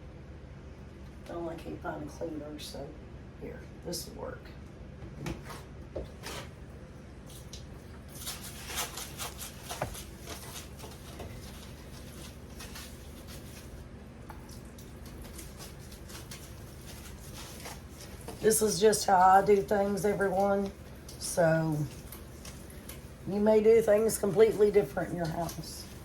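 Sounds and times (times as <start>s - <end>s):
steady low hum: 0.0s - 26.0s
cloth scrubbing a stovetop: 7.3s - 14.0s, 15.0s - 26.0s.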